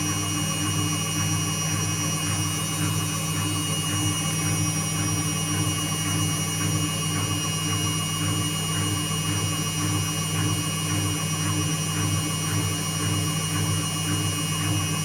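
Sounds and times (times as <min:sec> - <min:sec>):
washing machine motor hum: 0:00.0 - 0:15.0.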